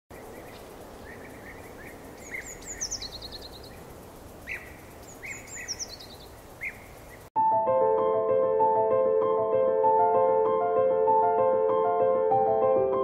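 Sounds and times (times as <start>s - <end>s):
outdoor ambience hiss: 0.1s - 7.3s
songbirds chirping: 0.1s - 7.3s.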